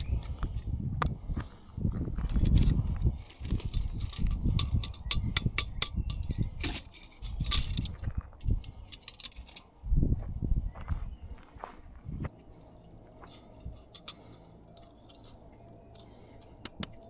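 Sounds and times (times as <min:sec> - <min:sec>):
sharp clicks and light clinks: 0:02.6 - 0:09.7, 0:12.6 - 0:17.0.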